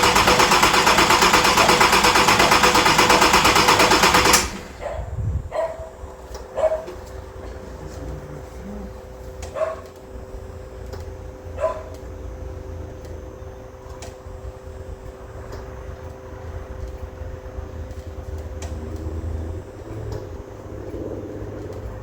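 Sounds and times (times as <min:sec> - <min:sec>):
steady low hum: 0:04.6 - 0:22.0
dog barking: 0:04.8 - 0:07.0, 0:09.4 - 0:10.0, 0:11.6 - 0:12.0.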